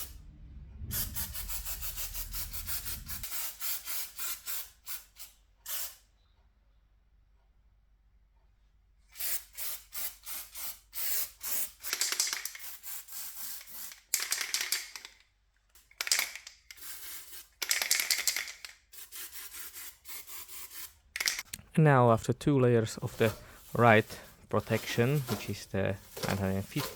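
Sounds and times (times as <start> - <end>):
aerosol can spraying: 0.9 - 6.0, 9.1 - 15.0, 16.0 - 21.5, 23.1 - 26.9.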